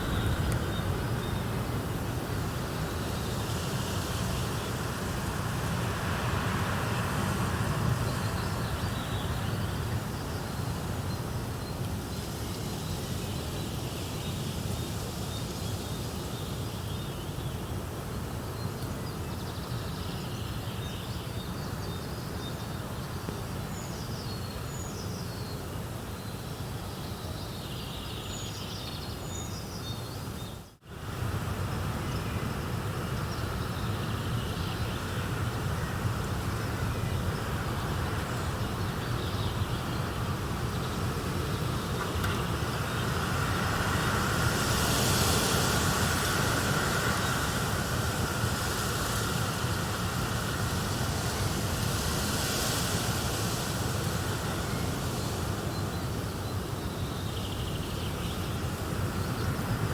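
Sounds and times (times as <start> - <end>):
steady rushing noise: 0.0 - 10.8, 35.2 - 56.8.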